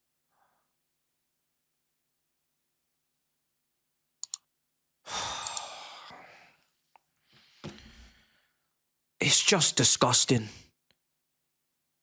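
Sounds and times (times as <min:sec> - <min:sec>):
man sighing: 0:05.1 - 0:06.5.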